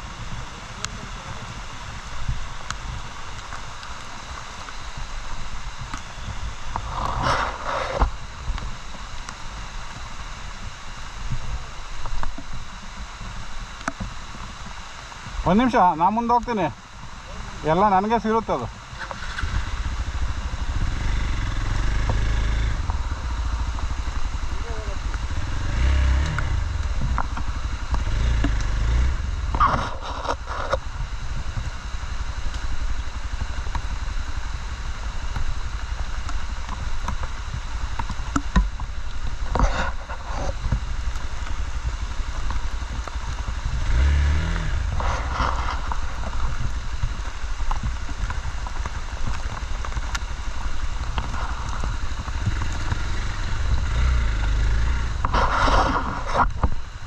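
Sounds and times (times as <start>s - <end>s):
motorcycle engine revving: 19.0s - 57.0s.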